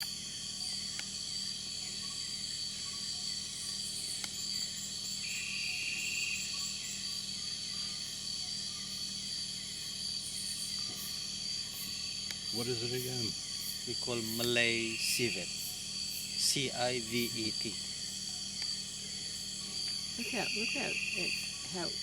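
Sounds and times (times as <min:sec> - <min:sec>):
insects buzzing and chirping: 0:00.0 - 0:22.0
pulsed insect trill: 0:00.0 - 0:22.0
faint clicks: 0:00.9 - 0:01.1.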